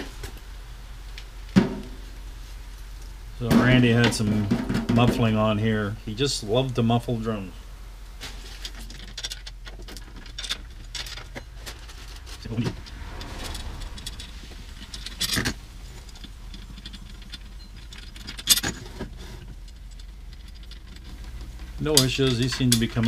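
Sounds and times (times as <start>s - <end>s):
steady low hum: 9.5s - 18.1s.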